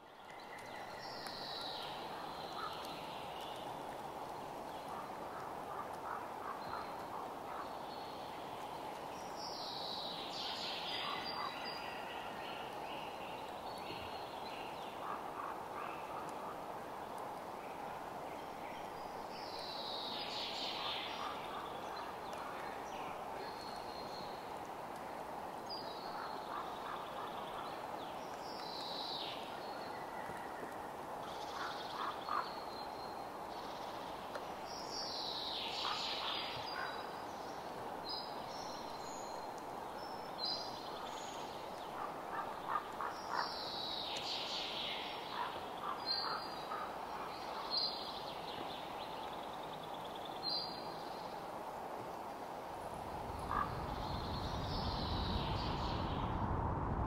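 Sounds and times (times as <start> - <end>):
background hiss: 0.0 - 57.0
birds calling and chirping: 53.0 - 56.4.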